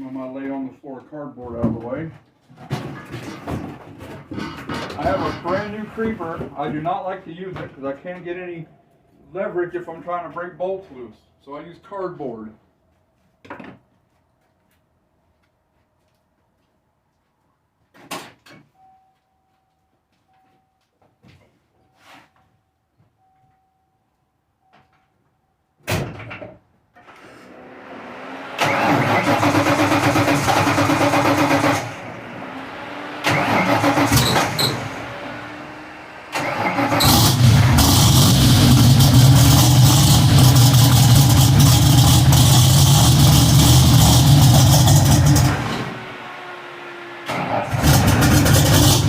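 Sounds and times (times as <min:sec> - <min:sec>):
car engine starting and revving: 0:27.0 - 0:49.0.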